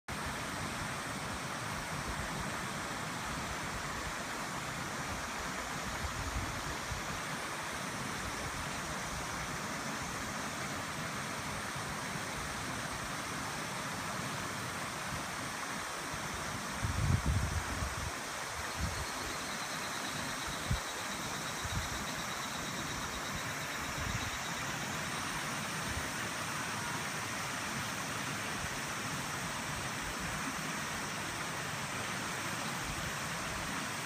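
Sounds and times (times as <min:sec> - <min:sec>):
stream rushing over rocks: 0:00.1 - 0:34.0.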